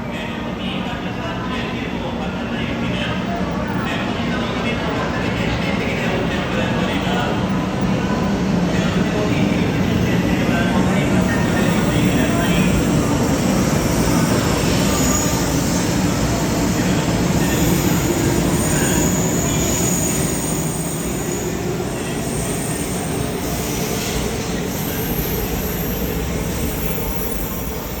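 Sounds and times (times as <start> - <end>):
train rumbling with high whine: 0.0 - 28.0.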